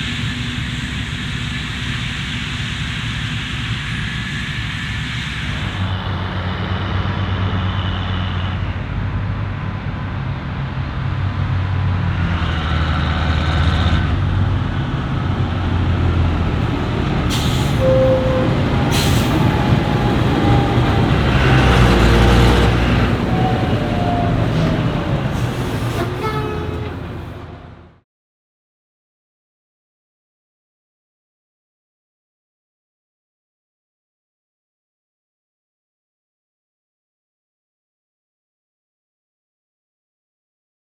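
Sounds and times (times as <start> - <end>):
diesel farm machinery running: 4.0 - 10.2, 14.0 - 27.9.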